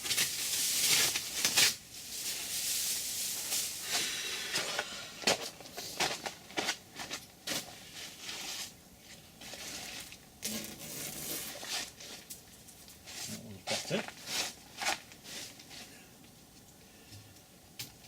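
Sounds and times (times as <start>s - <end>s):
masking tape peeling: 10.4s - 11.9s.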